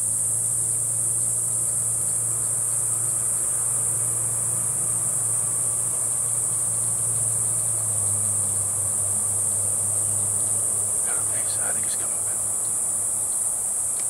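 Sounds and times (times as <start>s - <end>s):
night insects chirping: 0.0s - 14.0s
low steady hum: 9.4s - 13.9s.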